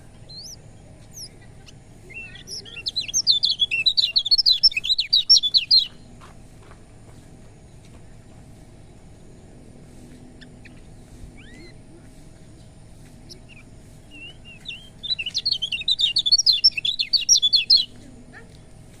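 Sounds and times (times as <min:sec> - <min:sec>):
bird chirping and twittering: 0:00.0 - 0:06.2, 0:07.6 - 0:19.0
faint steady hum: 0:00.0 - 0:19.0
bird whistle: 0:02.1 - 0:06.0, 0:13.3 - 0:17.9.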